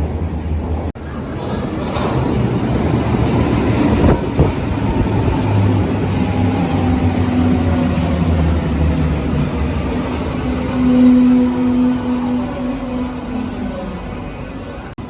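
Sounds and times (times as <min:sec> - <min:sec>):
train running hum: 0:00.0 - 0:15.0.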